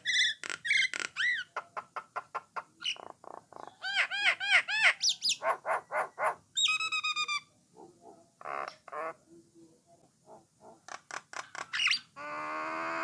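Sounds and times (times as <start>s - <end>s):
starling singing: 2.6s - 7.5s.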